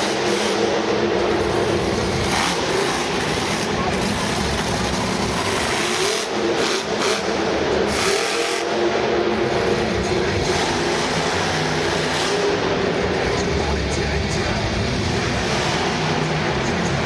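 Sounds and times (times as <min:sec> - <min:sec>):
truck engine revving hard: 0:00.0 - 0:17.0.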